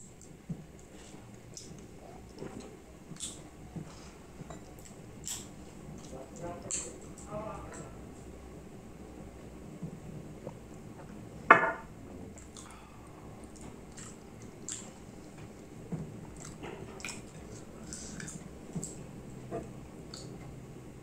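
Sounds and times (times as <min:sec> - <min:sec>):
person chewing food: 0:00.1 - 0:07.0, 0:12.3 - 0:20.5.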